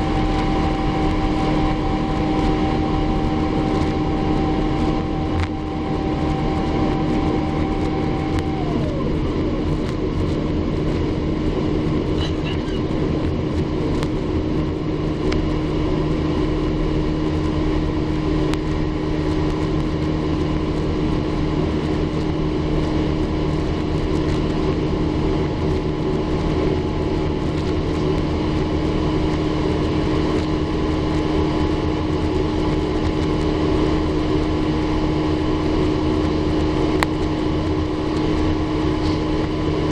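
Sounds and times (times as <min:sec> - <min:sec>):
constant low hum: 0:00.0 - 0:39.9
jet engine rush and rumble: 0:00.0 - 0:39.9
tone sliding down in pitch: 0:01.3 - 0:09.3.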